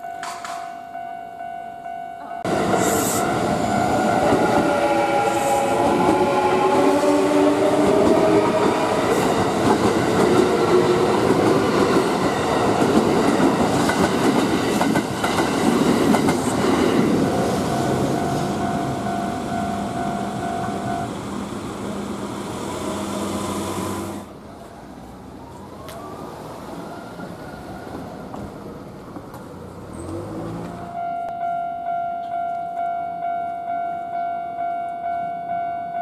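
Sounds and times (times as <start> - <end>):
level crossing warning tone: 0.9 - 13.7, 17.4 - 22.0
electric train running: 2.5 - 24.3
train motors whining: 17.1 - 24.3.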